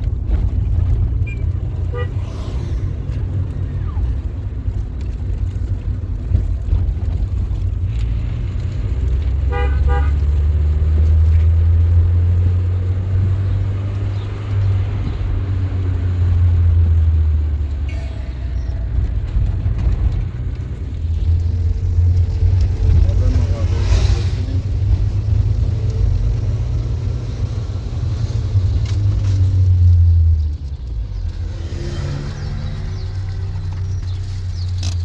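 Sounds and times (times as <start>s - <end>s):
car engine and road rumble: 0.0s - 35.0s
car horn toots: 1.8s - 2.3s, 9.4s - 10.4s.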